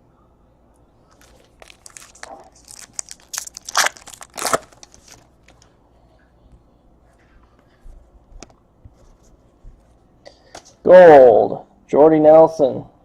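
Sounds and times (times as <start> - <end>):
foil wrapper crinkling and tearing: 1.1 - 5.7.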